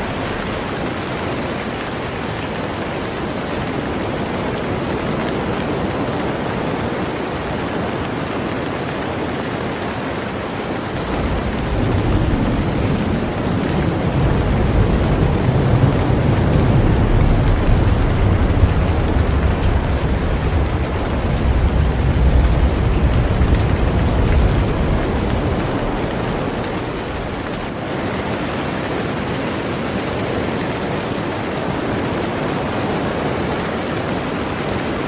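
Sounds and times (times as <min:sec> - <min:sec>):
heavy rain on a boat: 0:00.0 - 0:35.0
deep low rumble: 0:11.0 - 0:27.7.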